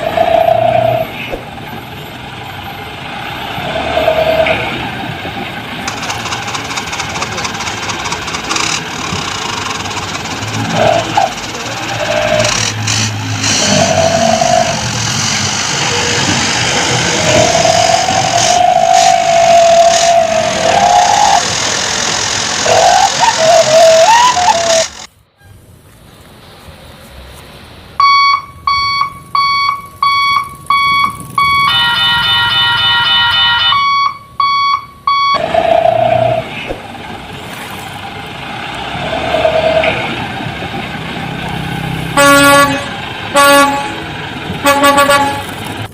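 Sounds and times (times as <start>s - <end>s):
truck engine revving: 0.0s - 25.2s, 35.0s - 45.9s
short electronic beeps: 28.0s - 35.4s
truck horn toot: 31.0s - 34.2s, 42.1s - 45.6s.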